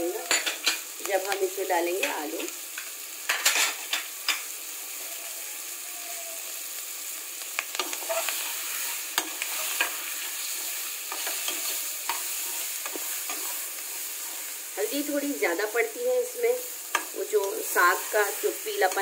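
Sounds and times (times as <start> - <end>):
onions sizzling in oil: 0.0 - 19.0
spatula scraping a pot: 7.9 - 14.6.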